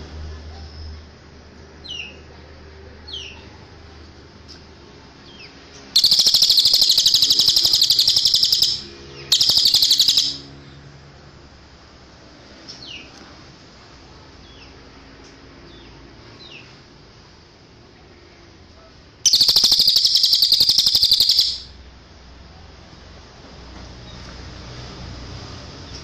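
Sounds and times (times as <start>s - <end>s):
bird trilling: 6.0s - 10.5s, 19.2s - 21.7s
short high chirps: 6.0s - 10.5s, 19.3s - 21.7s.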